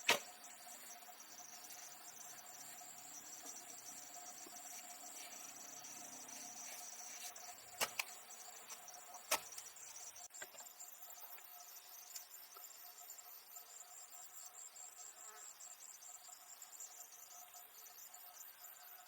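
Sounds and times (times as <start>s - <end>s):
insects chirring: 0.0s - 19.0s
sharp clicks: 7.8s - 9.7s.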